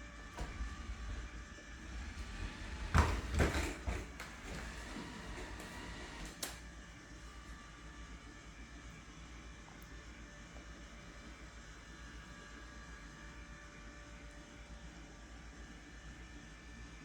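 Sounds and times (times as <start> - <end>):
robot vacuum humming: 0.0 - 6.6
knocks and scraping: 0.2 - 6.4.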